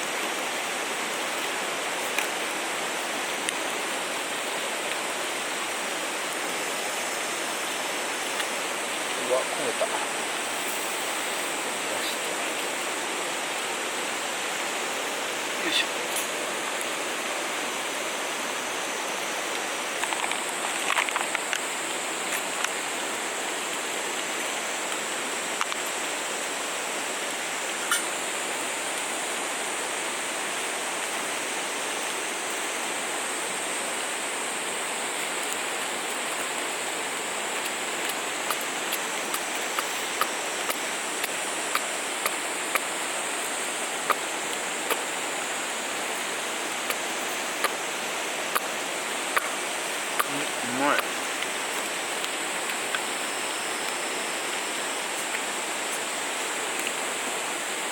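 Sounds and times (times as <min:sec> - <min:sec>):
stream flowing: 0:00.0 - 0:57.9
sharp clicks and crackles: 0:20.0 - 0:21.6.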